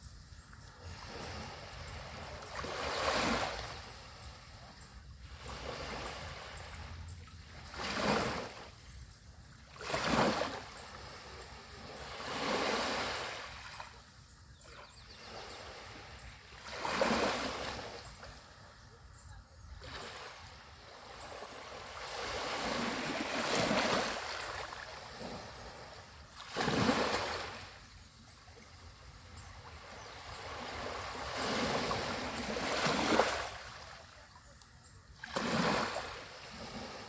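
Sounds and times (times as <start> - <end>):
sea waves breaking on beach: 0.8 - 4.5, 7.6 - 8.8, 9.7 - 14.0, 14.9 - 18.3, 19.8 - 34.3, 35.2 - 37.0.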